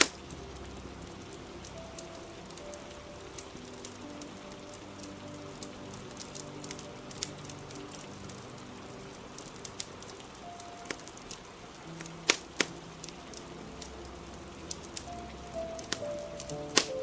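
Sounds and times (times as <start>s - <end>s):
faint soft music: 0.0s - 17.0s
fire crackling and popping: 0.0s - 17.0s
steady rain: 0.0s - 17.0s.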